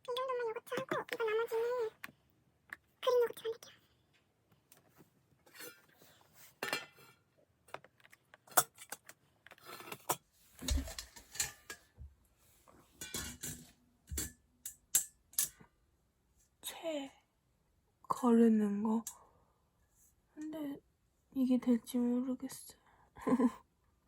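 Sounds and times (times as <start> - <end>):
dishes and utensils clinking: 6.6 - 7.2, 10.0 - 12.0, 12.9 - 15.6.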